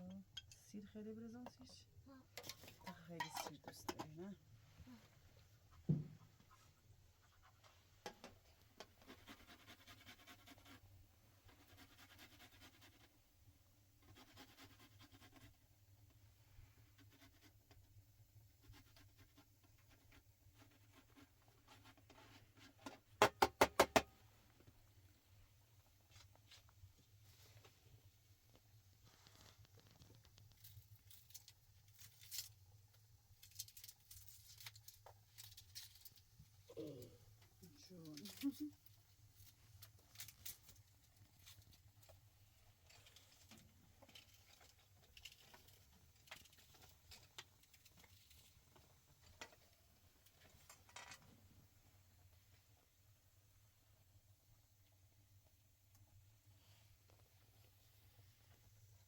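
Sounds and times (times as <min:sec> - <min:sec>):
kitchen utensils scratching and clicking: 0:02.4 - 0:04.1
light rustling of handling: 0:24.5 - 0:51.5.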